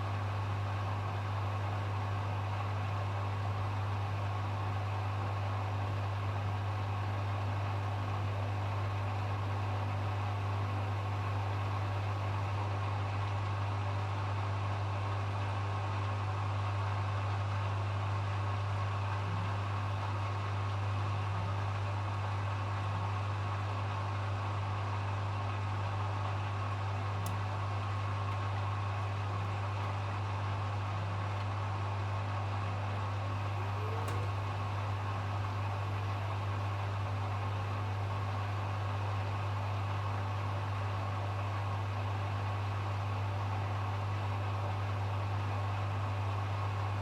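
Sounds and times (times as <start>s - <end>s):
washing machine spinning: 24.2s - 47.0s.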